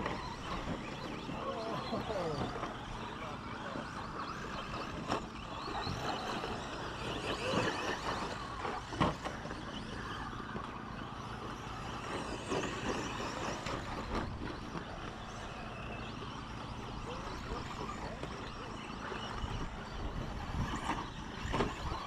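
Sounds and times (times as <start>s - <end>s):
rc truck motor whine: 0.0s - 22.0s.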